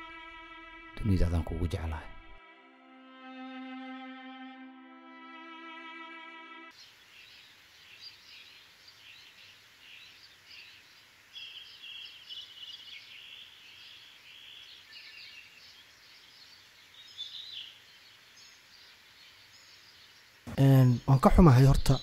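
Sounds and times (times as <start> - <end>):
small birds chirping: 6.7 - 22.0.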